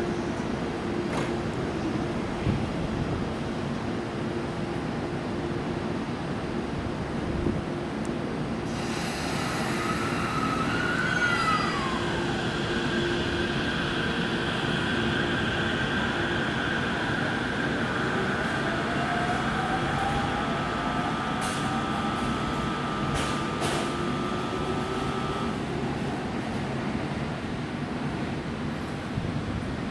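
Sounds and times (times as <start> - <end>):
train wheels rumbling on rail: 0.0 - 29.9
train motor whine: 8.7 - 26.8.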